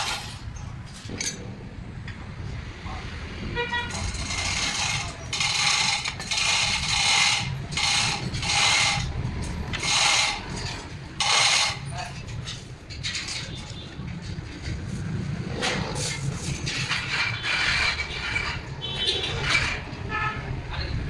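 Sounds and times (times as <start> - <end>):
rhythmic scraping strokes: 3.9 - 13.3.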